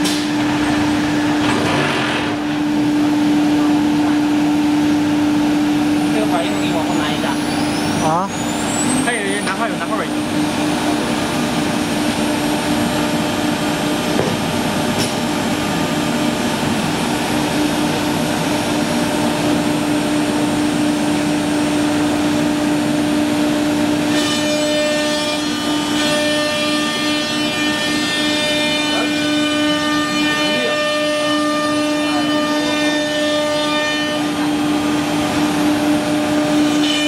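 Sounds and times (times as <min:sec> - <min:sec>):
wood router machine whine: 0:05.8 - 0:37.0.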